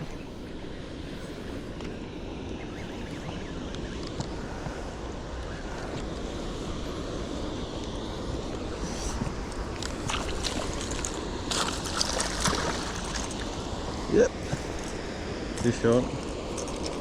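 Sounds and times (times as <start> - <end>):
river water flowing: 6.3 - 17.0.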